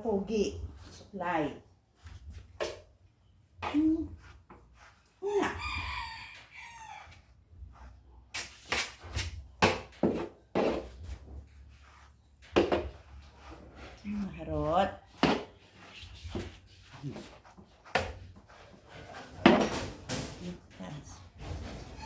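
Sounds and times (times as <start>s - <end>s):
rooster crowing: 5.5s - 7.2s.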